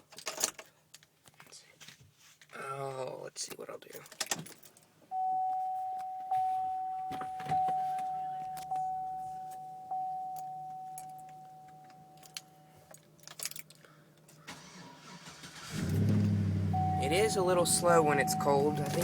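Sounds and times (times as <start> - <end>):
keys rattling and clicking: 0.0 - 1.2, 3.8 - 4.9, 6.9 - 14.4
car warning chime dinging: 5.1 - 12.8, 15.6 - 19.0
low steady hum: 5.1 - 14.3, 15.7 - 19.0.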